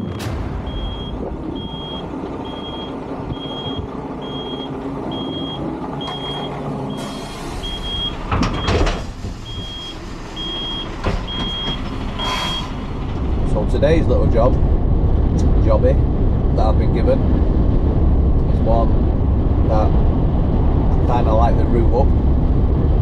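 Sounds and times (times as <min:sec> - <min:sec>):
rush of air: 0:00.0 - 0:03.4
truck engine running: 0:00.0 - 0:21.1
reversing alarm beeps: 0:00.6 - 0:08.8, 0:09.4 - 0:12.8.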